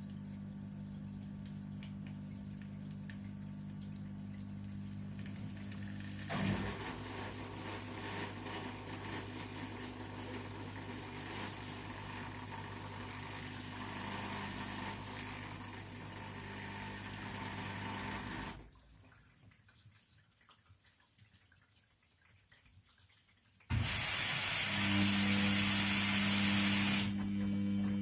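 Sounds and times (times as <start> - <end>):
faint water drips: 0.0 - 6.0, 18.6 - 23.7
washing machine motor hum: 0.0 - 18.7, 23.7 - 28.0.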